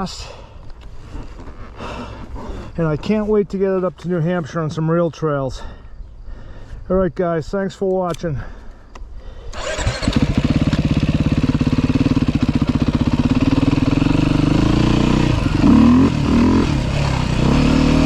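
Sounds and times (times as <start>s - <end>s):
dirt bike engine revving: 9.5s - 18.0s.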